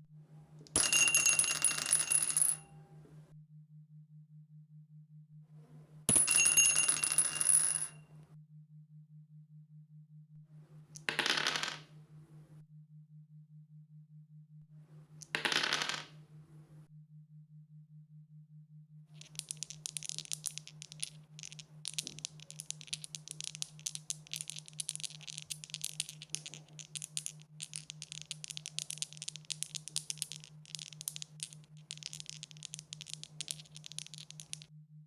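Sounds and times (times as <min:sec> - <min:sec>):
dice rattling on hard surface: 0:11.0 - 0:11.9, 0:15.2 - 0:16.2, 0:19.2 - 0:34.7.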